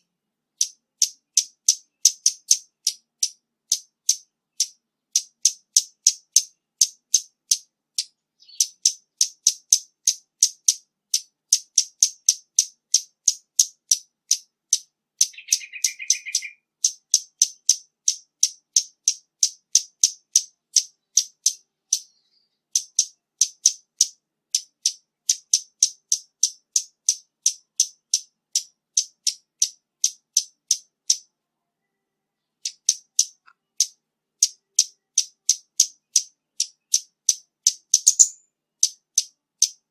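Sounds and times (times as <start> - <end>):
bird high ticking call: 0.0 - 31.3, 32.6 - 39.9
bird buzzy chatter: 15.3 - 16.6, 38.0 - 38.4.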